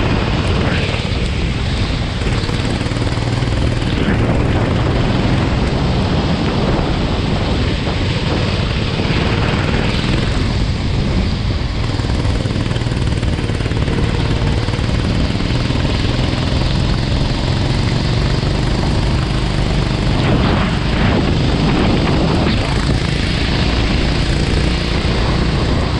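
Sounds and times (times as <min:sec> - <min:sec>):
go-kart engine running: 0:00.0 - 0:25.9
rush of wind and track noise: 0:00.0 - 0:25.9.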